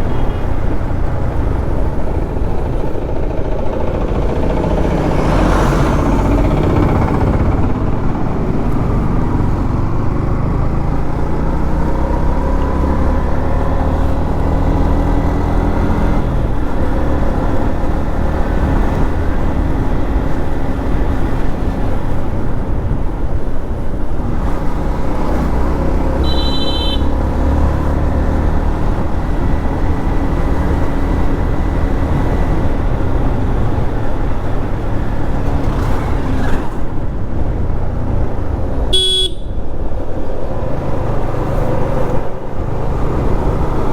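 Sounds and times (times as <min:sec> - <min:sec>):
motorcycle engine running: 0:00.0 - 0:43.9
short high beep: 0:26.2 - 0:27.0, 0:39.0 - 0:39.6.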